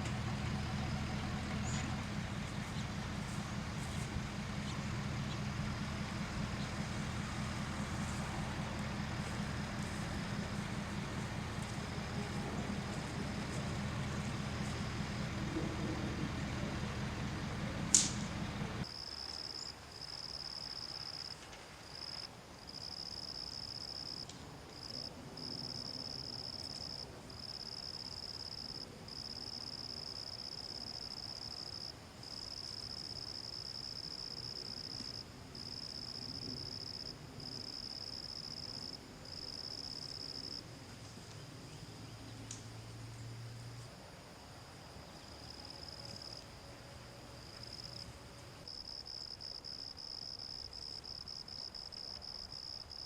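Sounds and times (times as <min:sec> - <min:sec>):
vehicle engine humming: 0:00.0 - 0:18.9, 0:32.1 - 0:48.8
sharp click: 0:17.9 - 0:18.2
insects trilling: 0:18.8 - 0:53.0.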